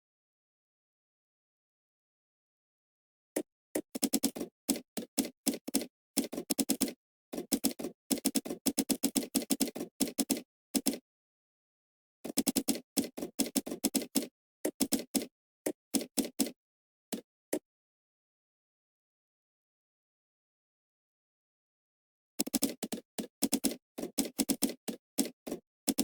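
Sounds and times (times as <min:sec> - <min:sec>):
typing on computer keyboard: 0:03.8 - 0:11.0, 0:12.2 - 0:17.2, 0:22.4 - 0:26.0.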